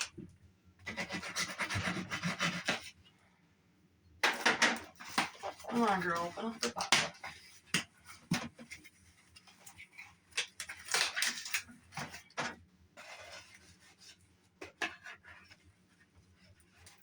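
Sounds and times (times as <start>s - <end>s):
knife cutting cardboard box: 0.8s - 3.0s, 13.0s - 15.5s.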